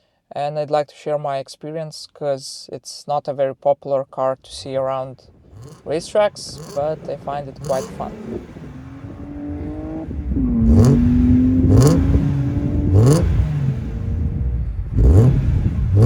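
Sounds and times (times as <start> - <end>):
car engine revving: 4.5 - 16.0.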